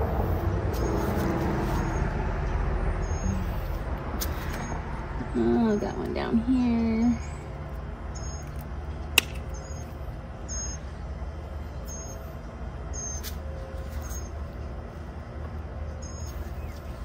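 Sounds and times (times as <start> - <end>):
small bird chirping: 3.0 - 3.8, 7.0 - 8.7, 9.4 - 10.9, 11.8 - 12.3, 12.9 - 14.4, 16.0 - 17.0
sharp snap: 9.1 - 9.6.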